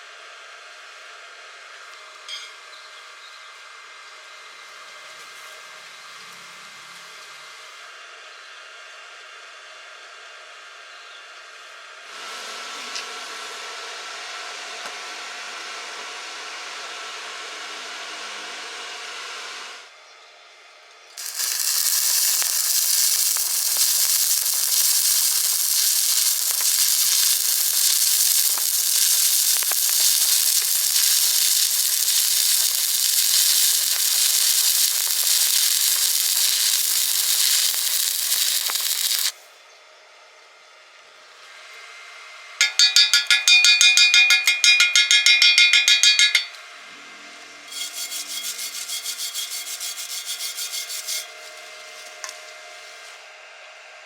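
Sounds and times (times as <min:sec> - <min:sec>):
steady held tones: 0:21.2 - 0:39.3, 0:42.6 - 0:46.6
welding arc hissing crackle: 0:21.2 - 0:39.4, 0:42.7 - 0:46.5, 0:47.7 - 0:52.4.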